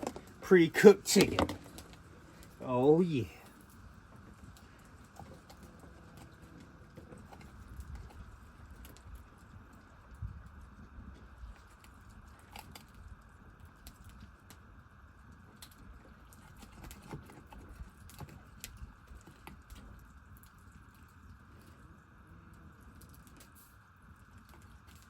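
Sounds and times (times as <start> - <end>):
wood fire crackling: 0.0 - 5.2.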